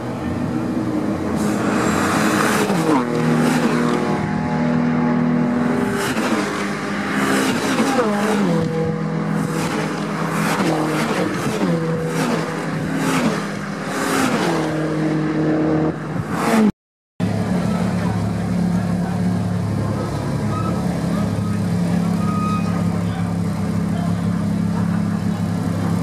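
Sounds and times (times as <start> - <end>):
race cars passing at high revs: 0.0 - 26.0.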